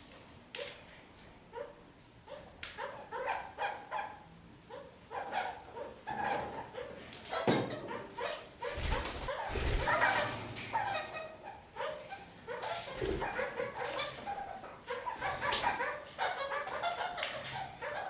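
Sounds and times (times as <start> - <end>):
parakeets chattering and calling: 8.5 - 12.0.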